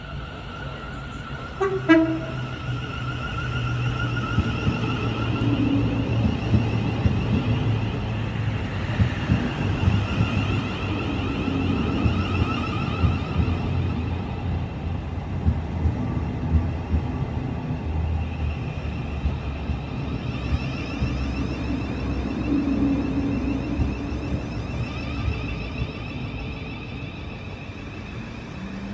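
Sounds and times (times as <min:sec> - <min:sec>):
electric train hum and rumble: 0:00.0 - 0:28.9
faint high whine: 0:18.1 - 0:28.9.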